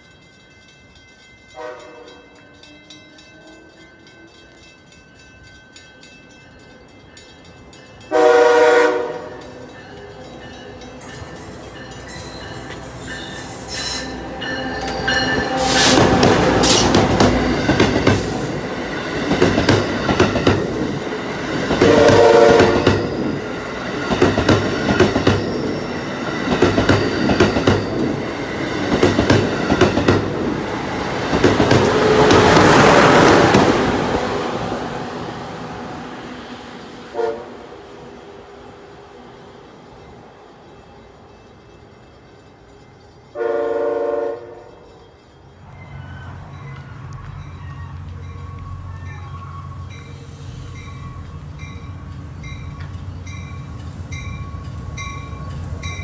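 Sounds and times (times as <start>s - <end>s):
train rumbling on rails: 0.0s - 56.0s
train horn: 1.6s - 4.4s, 8.1s - 9.5s, 13.4s - 16.9s, 21.7s - 23.1s, 37.1s - 38.0s, 43.3s - 44.8s.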